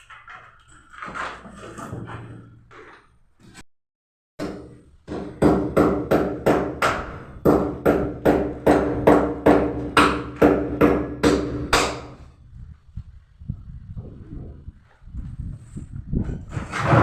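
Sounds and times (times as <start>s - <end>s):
hammer blows ringing on metal: 4.4s - 12.2s.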